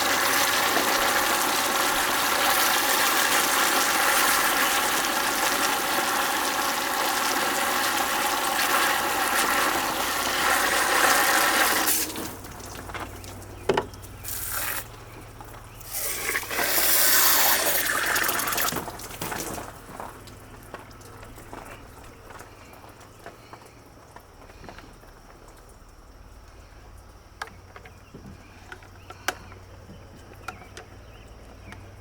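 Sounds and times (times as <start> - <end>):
water rushing and spraying: 0.0 - 13.5, 14.2 - 15.0, 15.8 - 19.6
dishwasher motor hum: 0.0 - 23.1.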